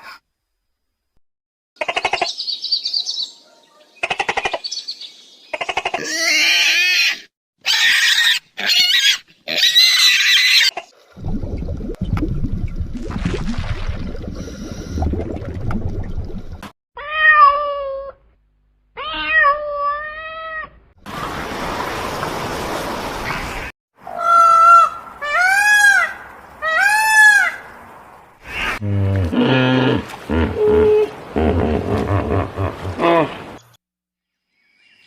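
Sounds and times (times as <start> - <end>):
cat meowing: 19.0 - 20.7.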